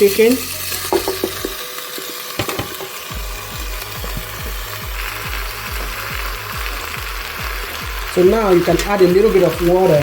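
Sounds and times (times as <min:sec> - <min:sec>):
food sizzling in a hot pot: 0:00.0 - 0:10.0
utensil knocking against pot: 0:02.4 - 0:02.9.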